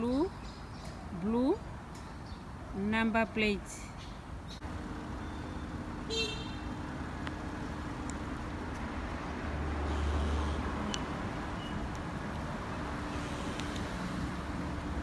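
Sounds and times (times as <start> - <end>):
cars passing: 0.0 - 15.0
high-pitched car horn toot: 6.1 - 6.7.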